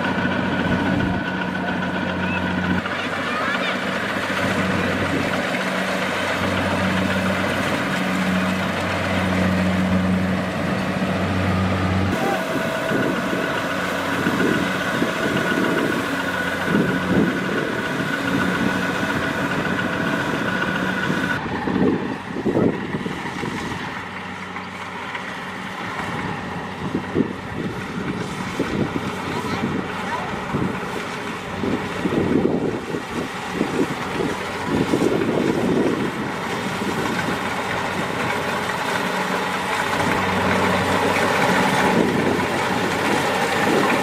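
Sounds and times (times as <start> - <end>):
combine harvester engine drone: 0.0 - 44.0.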